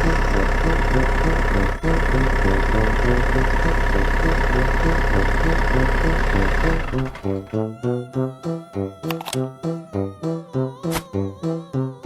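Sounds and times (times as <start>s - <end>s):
vehicle engine idling: 0.0s - 7.5s.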